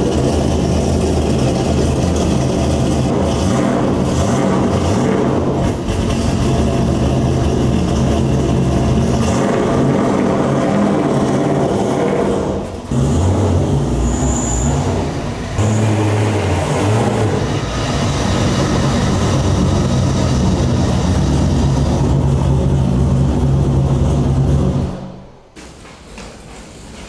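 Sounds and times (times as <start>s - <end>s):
race car engine idling: 0.0s - 13.4s, 17.6s - 25.4s.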